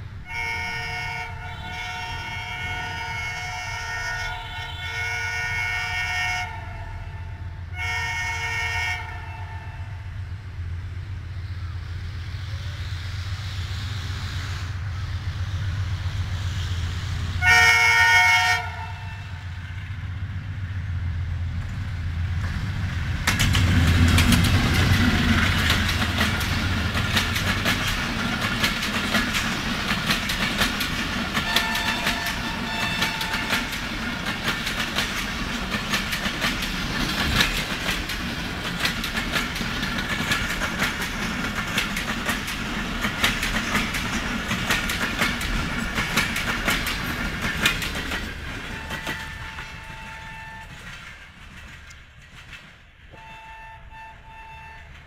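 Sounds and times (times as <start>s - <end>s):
diesel locomotive engine drone: 0.0s - 55.0s
locomotive horn blast: 0.2s - 10.1s, 17.4s - 19.9s, 31.4s - 33.8s, 48.7s - 51.0s, 53.1s - 55.0s
wheels clacking over rail joints: 21.5s - 53.6s.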